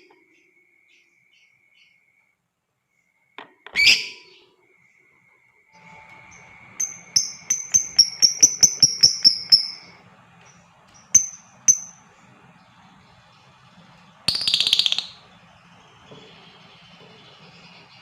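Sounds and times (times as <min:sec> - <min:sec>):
lovebird chirping: 0:05.8 - 0:18.0.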